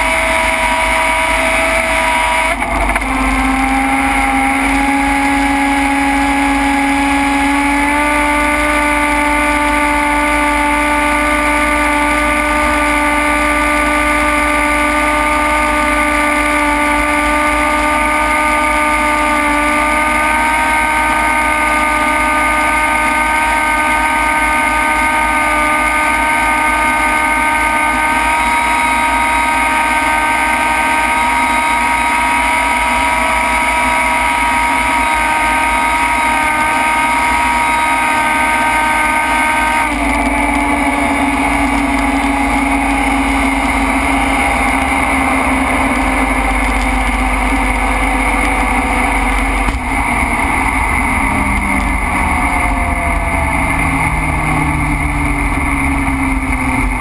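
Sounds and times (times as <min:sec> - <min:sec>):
car engine at high revs: 0:00.0 - 0:57.0.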